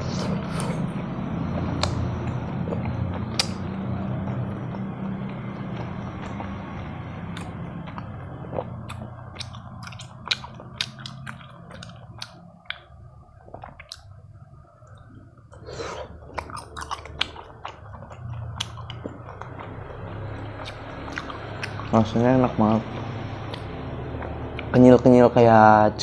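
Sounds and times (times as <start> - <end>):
close-up chewing: 0.0 - 3.9, 4.5 - 22.2
wet mouth clicks: 1.8 - 3.6, 8.6 - 14.2, 20.6 - 22.0, 23.4 - 24.7.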